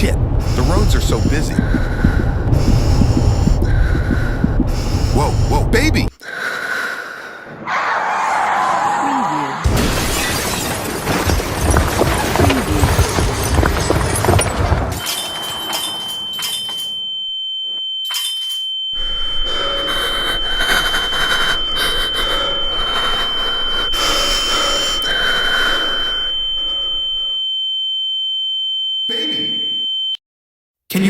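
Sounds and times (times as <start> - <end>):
high-pitched ringing tone: 15.0 - 30.2.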